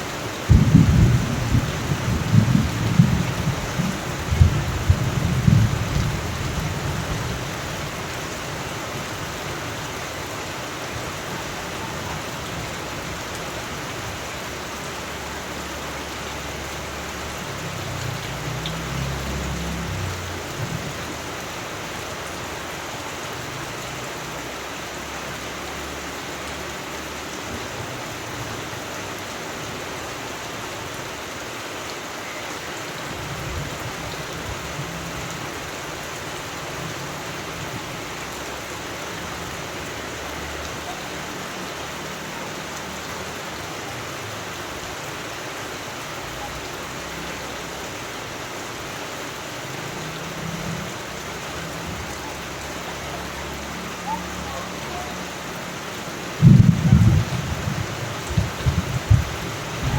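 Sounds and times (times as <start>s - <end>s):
steady rain falling: 0.0s - 59.9s
thunder rolling: 0.5s - 7.1s, 56.4s - 59.9s.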